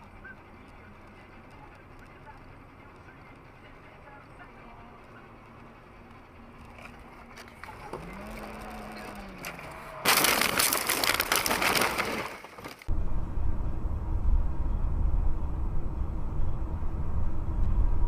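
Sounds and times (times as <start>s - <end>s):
engine and road noise rumble: 0.0s - 18.0s
car crash impact and crunching: 9.5s - 12.9s.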